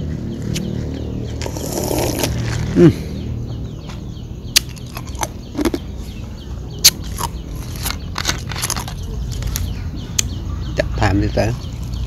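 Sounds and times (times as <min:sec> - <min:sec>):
crisp chewing crunches: 0:04.6 - 0:05.9, 0:06.8 - 0:09.7.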